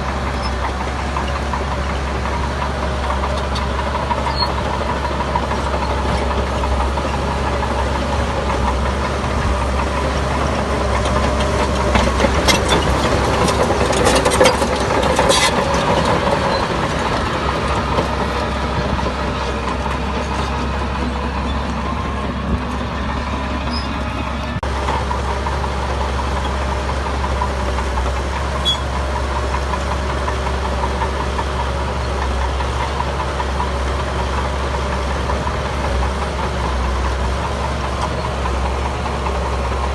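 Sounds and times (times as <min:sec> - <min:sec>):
heavy diesel engine running: 0:00.0 - 0:39.9
metallic clanks and knocks: 0:10.9 - 0:16.7.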